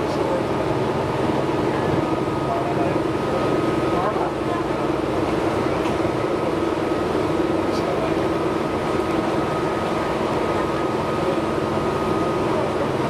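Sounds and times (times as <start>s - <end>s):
wheels rumbling on rail: 0.0s - 13.0s.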